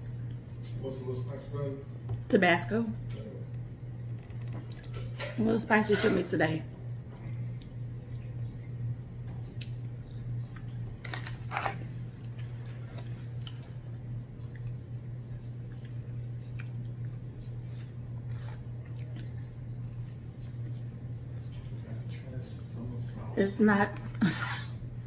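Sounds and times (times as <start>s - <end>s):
steady low hum: 0.0s - 25.0s
chewing with wet mouth clicks: 4.6s - 5.0s, 7.2s - 8.6s, 9.5s - 11.3s, 13.0s - 18.0s, 18.6s - 20.8s.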